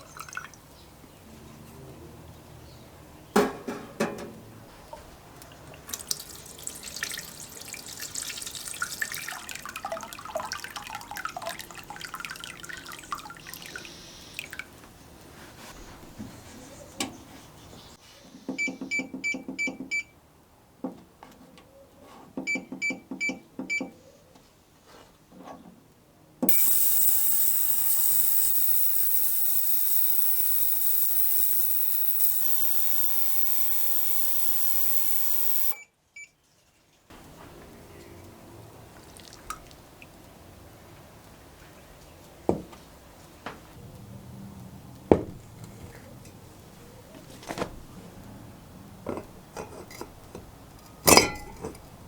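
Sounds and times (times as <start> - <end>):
ultrasonic cleaner high hissing buzz: 26.5 - 35.8
control panel beeps: 26.5 - 36.3.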